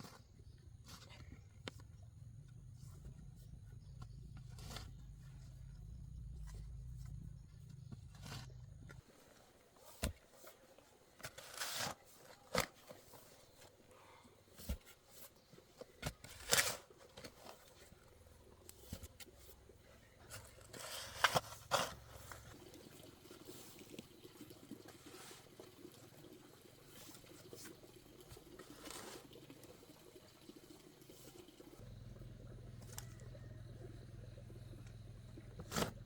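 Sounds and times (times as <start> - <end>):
scraping crunching noises: 14.7 - 22.6.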